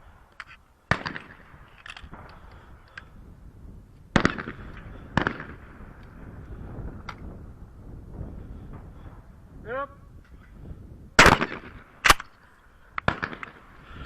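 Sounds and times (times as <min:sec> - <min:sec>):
shotgun shots with echo: 0:11.2 - 0:12.2, 0:13.0 - 0:13.6.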